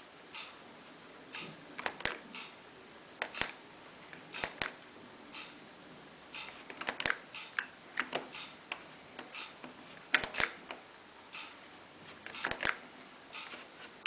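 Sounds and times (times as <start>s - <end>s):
washing machine control clicks: 6.3s - 8.6s, 12.3s - 13.5s.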